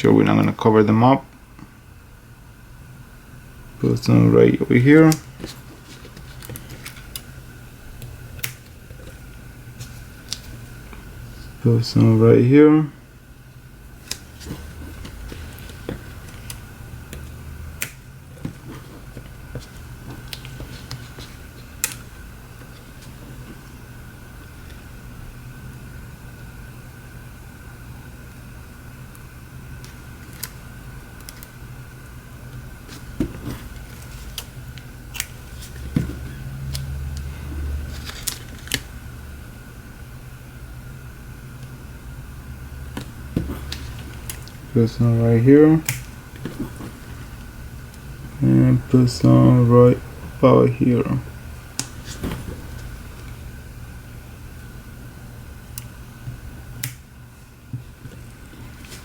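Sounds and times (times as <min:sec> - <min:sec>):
faint steady hum: 0:00.0 - 0:59.0
adhesive tape clicks: 0:08.0 - 0:08.8, 0:14.0 - 0:18.1, 0:33.9 - 0:37.3, 0:45.8 - 0:46.6, 0:56.8 - 0:57.0
scissors snipping: 0:35.1 - 0:35.8, 0:45.8 - 0:46.6, 0:56.8 - 0:57.0.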